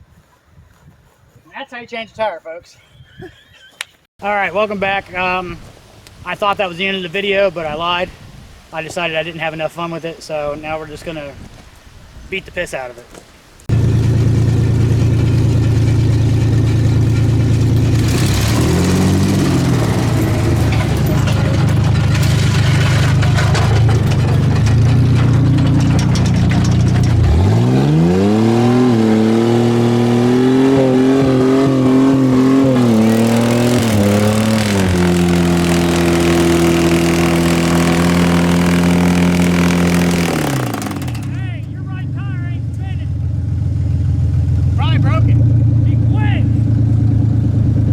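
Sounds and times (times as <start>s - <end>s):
truck engine revving: 13.7s - 47.9s.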